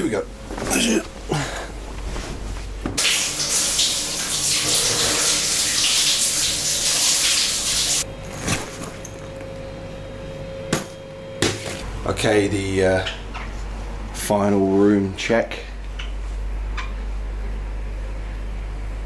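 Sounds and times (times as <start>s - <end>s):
water running from a tap: 3.0s - 8.1s.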